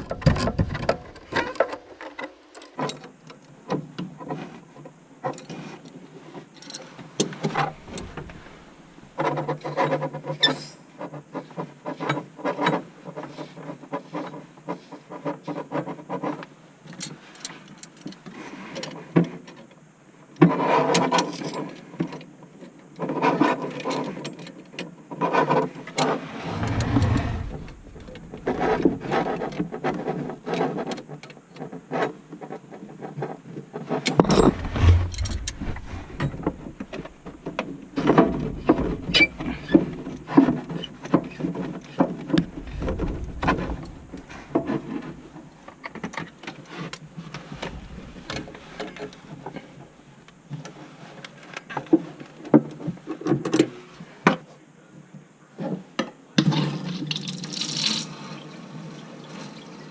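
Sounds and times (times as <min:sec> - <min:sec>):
tools and fittings clanking: 0:00.0 - 0:02.7.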